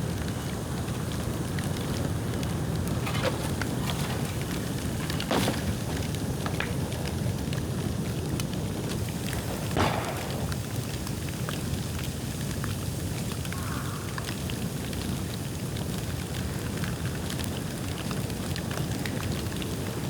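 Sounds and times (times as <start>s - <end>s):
steady rushing fire: 0.0s - 13.5s
loud fire pops: 0.0s - 13.6s
bamboo bonfire crackling: 0.0s - 20.0s.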